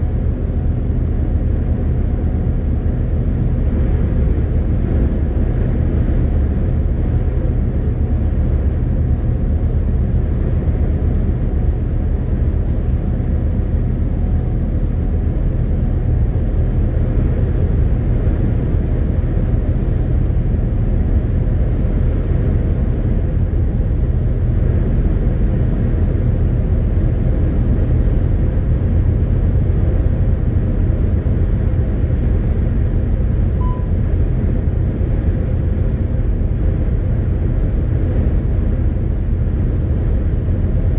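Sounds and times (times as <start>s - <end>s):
truck diesel engine rumbling: 0.0s - 40.9s
short beep: 33.6s - 34.0s.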